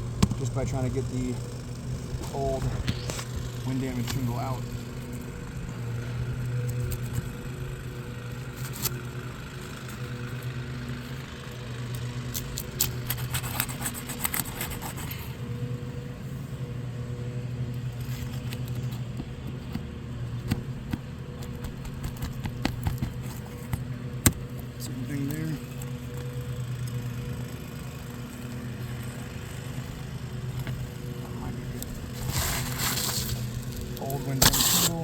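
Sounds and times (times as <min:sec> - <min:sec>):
low mechanical hum: 0:00.0 - 0:35.0
roof shingles scraping and crackling: 0:17.8 - 0:27.7, 0:28.3 - 0:35.0.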